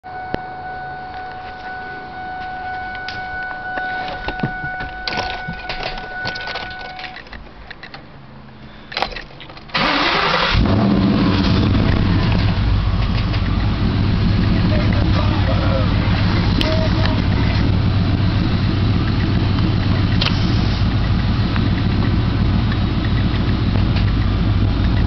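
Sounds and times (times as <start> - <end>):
steady tone: 0.0 - 7.2
clicks and rattles: 5.1 - 8.1, 8.9 - 9.8
car engine idling: 9.3 - 25.0
starter motor cranking: 9.7 - 12.5.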